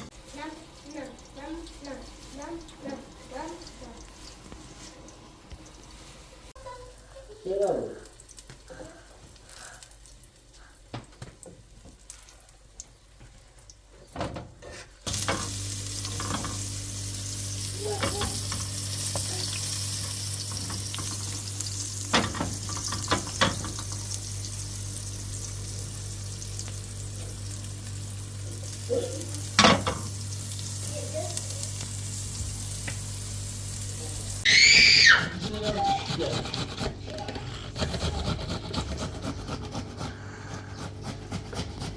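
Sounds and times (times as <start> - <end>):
food sizzling in a pan: 0.0 - 14.2, 15.0 - 34.8.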